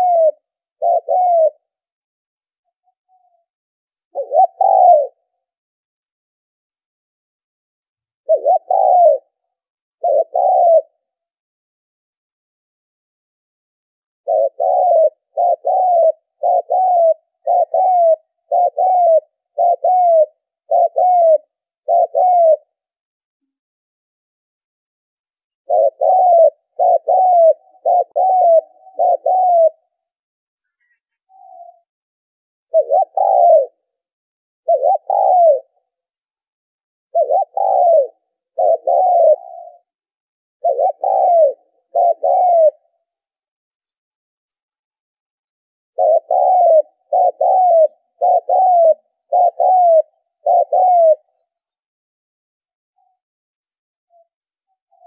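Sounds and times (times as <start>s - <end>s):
dove cooing: 0.0s - 1.9s, 4.1s - 5.5s, 8.2s - 11.3s, 14.2s - 22.9s, 25.6s - 30.1s, 30.8s - 31.9s, 32.7s - 36.0s, 37.1s - 43.4s, 46.0s - 51.4s.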